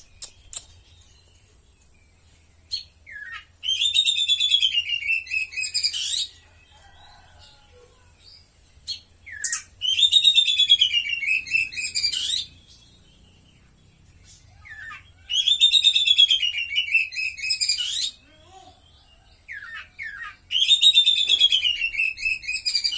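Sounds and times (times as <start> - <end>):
songbird singing rapid high notes: 9.2 - 18.3.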